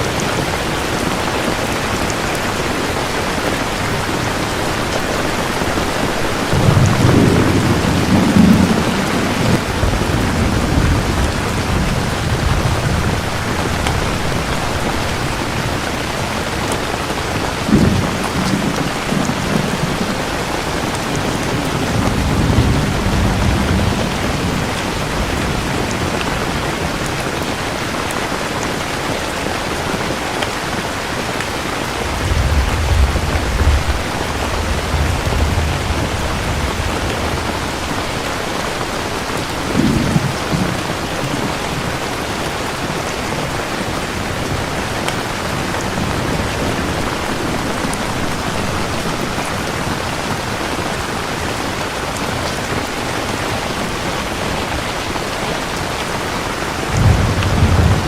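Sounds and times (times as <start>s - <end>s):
heavy rain falling: 0.0s - 58.0s
low thunder rumbling: 0.1s - 27.6s, 31.8s - 42.8s, 55.8s - 58.0s
thunder crack: 4.8s - 15.8s, 17.6s - 27.0s, 31.9s - 38.5s, 56.9s - 58.0s.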